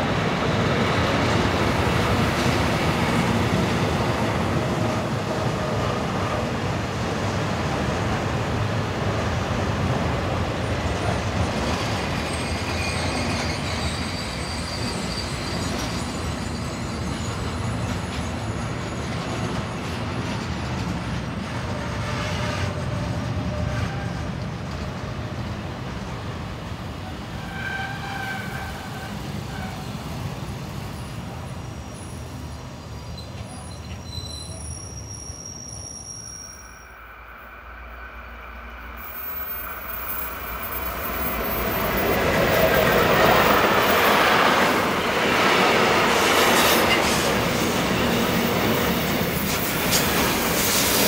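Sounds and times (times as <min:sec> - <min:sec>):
high wheel squeals: 0:11.8 - 0:19.8, 0:27.4 - 0:30.0, 0:31.9 - 0:37.2
freight train wheel rumble: 0:37.1 - 0:51.0.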